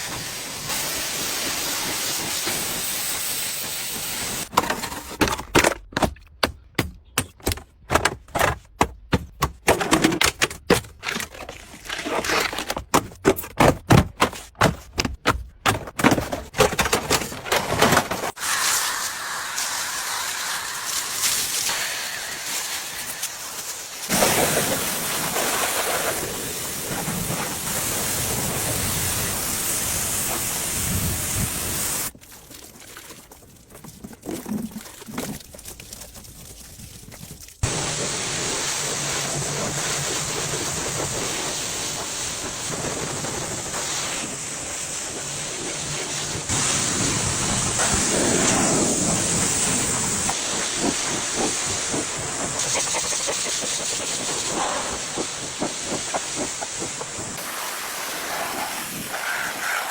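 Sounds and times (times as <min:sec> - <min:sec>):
high-pressure spray hissing: 0:00.0 - 0:04.5, 0:18.4 - 0:32.1, 0:37.6 - 0:59.9.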